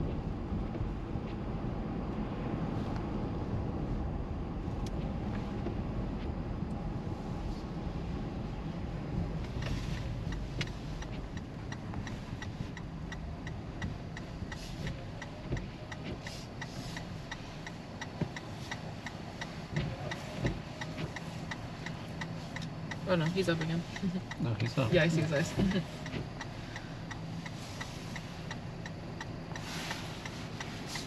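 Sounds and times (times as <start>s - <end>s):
road and engine noise: 0.0s - 31.0s
turn signal clicking: 4.8s - 6.9s, 7.6s - 31.0s.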